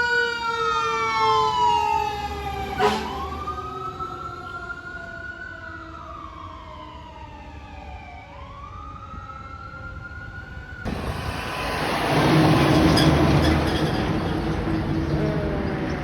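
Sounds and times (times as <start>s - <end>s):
emergency siren wailing: 0.0s - 16.0s
heavy vehicle passing: 10.9s - 16.0s.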